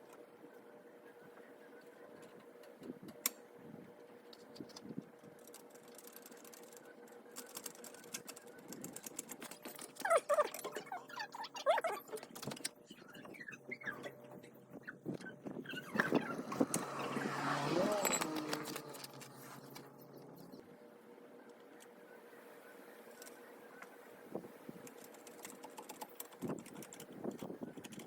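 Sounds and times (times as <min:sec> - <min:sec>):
short squeaky rubbing: 0:10.0 - 0:20.5.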